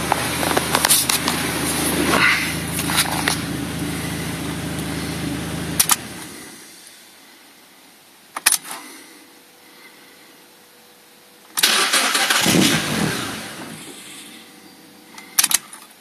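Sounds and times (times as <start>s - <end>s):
car engine idling: 0.0s - 7.0s, 11.6s - 15.5s
sharp clicks: 5.8s - 6.0s.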